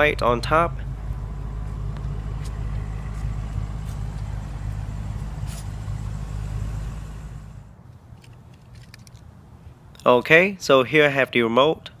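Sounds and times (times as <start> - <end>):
vehicle engine idling: 0.0 - 8.5.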